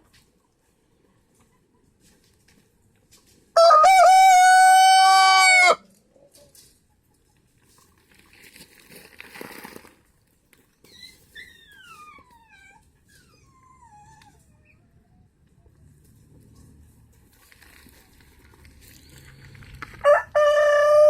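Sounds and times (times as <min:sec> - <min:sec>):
rustling: 0:07.4 - 0:12.3, 0:15.9 - 0:20.1.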